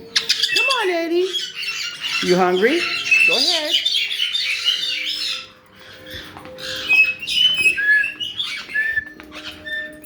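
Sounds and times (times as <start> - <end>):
parrots chirping and squawking: 0.0 - 10.0
parrot whistles: 6.6 - 10.0.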